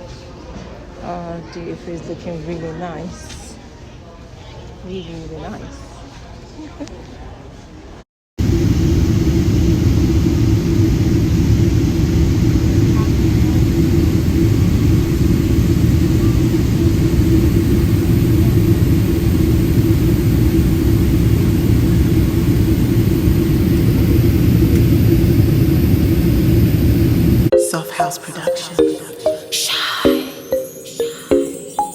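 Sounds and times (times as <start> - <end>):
jet engine cabin rumble: 8.4 - 27.5.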